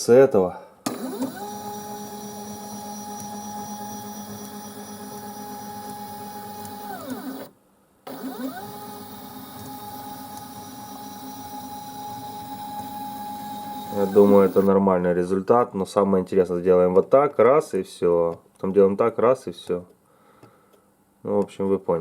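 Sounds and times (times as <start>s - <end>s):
stepper motor whine: 0.9s - 7.5s, 8.1s - 14.7s.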